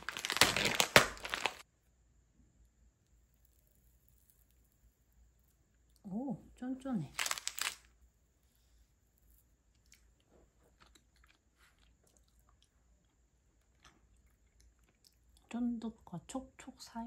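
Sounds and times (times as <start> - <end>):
faint chewing: 8.5 - 15.5.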